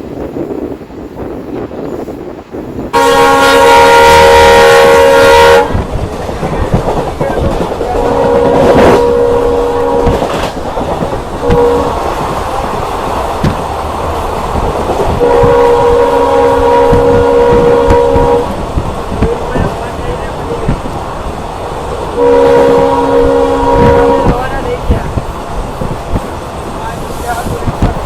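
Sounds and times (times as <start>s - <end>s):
moving train rumble and clatter: 0.0s - 28.0s
locomotive horn blasts: 2.9s - 5.8s, 7.9s - 10.5s, 11.4s - 12.0s, 15.1s - 18.6s, 22.2s - 24.6s.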